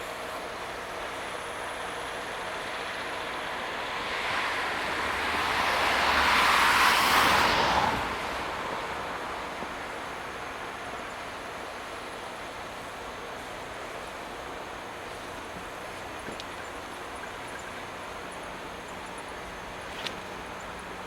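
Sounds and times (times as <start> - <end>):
steady background noise: 0.0 - 21.0
vehicle passing: 3.4 - 12.9.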